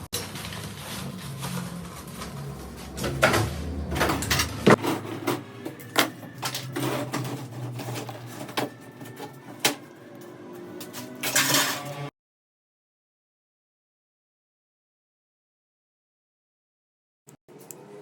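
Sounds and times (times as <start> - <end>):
low machine hum: 0.4 - 11.2.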